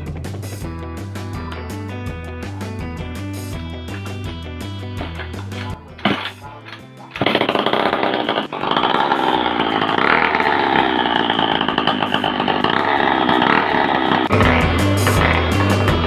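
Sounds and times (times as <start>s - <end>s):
background music: 0.0s - 16.0s
two-stroke engine buzzing: 0.6s - 16.0s.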